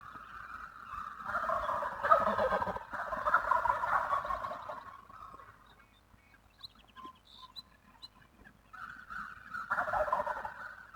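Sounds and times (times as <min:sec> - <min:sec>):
turkey gobbling: 0:01.2 - 0:04.9, 0:09.7 - 0:10.8.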